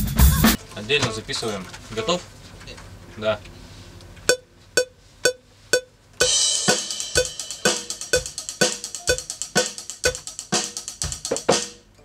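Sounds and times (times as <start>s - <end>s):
drum kit playing: 0.0s - 0.6s, 6.2s - 11.9s
crash cymbal: 6.2s - 10.2s.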